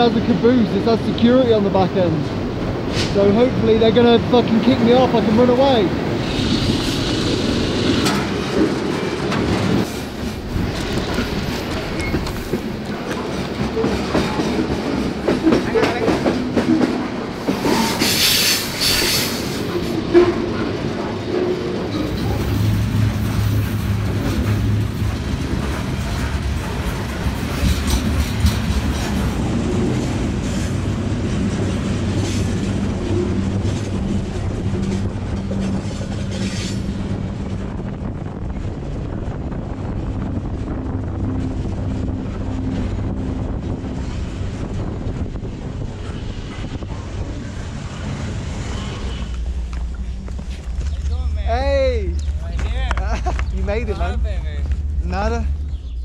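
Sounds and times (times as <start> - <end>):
train wheels rumbling over rails: 0.0 - 56.0.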